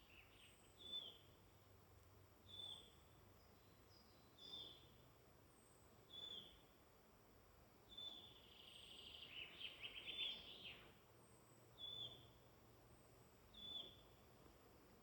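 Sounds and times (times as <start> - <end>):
bird trilling song: 0.0 - 1.2, 2.5 - 3.0, 3.6 - 4.9, 6.1 - 6.6, 7.9 - 10.9, 11.8 - 12.4, 13.5 - 14.1.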